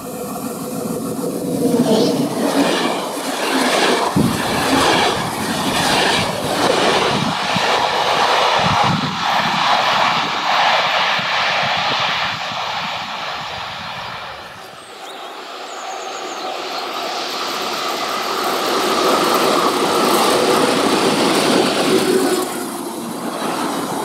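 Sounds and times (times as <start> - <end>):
train wheels running on rail: 0.0 - 24.0.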